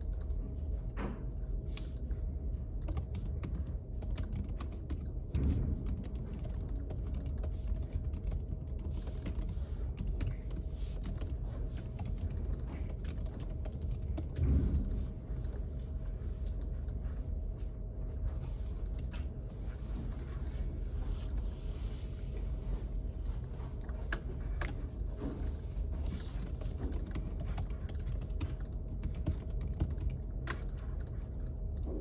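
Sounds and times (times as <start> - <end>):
faint hum: 0.0 - 32.0
low room rumble: 0.0 - 32.0
computer keyboard typing: 2.8 - 14.5, 26.0 - 31.9.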